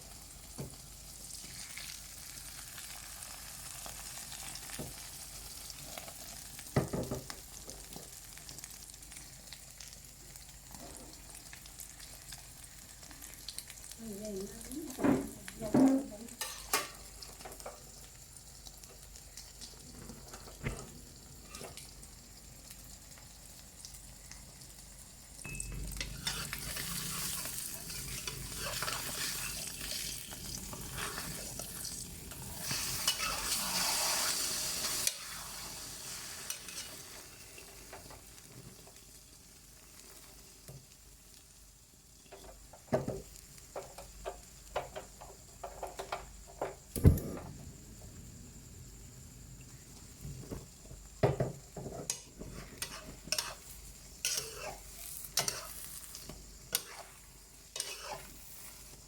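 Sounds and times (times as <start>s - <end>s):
food sizzling in a pan: 0.0s - 47.0s, 47.9s - 59.0s
utensil clicking on pan: 54.2s - 54.7s.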